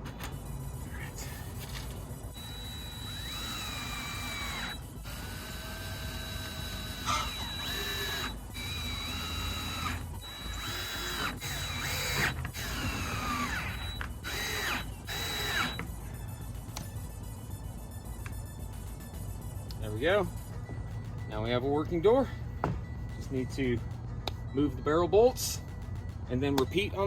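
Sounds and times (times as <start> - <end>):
cordless drill driving screws: 2.4 - 15.9.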